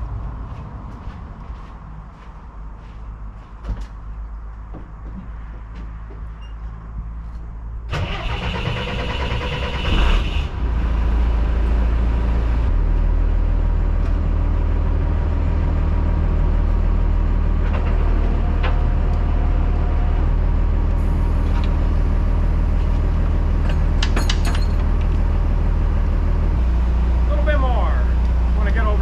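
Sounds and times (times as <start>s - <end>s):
tow truck engine running: 7.9s - 29.0s.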